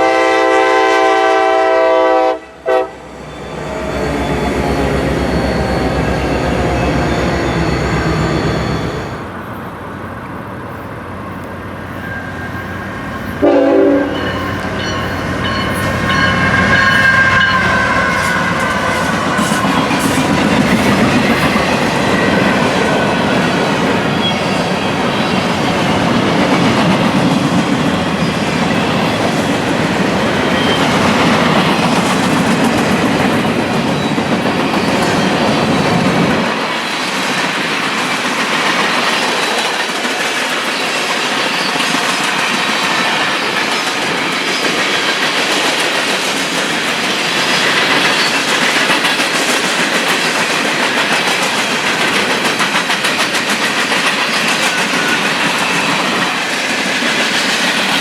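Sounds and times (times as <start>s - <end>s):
deep train rumble: 0.0s - 58.0s
train wheels clattering over rail joints: 14.2s - 58.0s.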